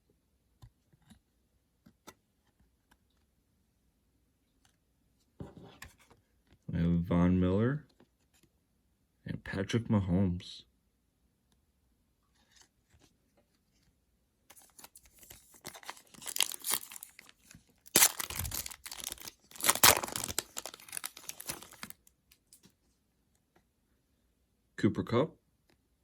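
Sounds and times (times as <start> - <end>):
trading cards rustling and scraping: 14.5 - 22.7.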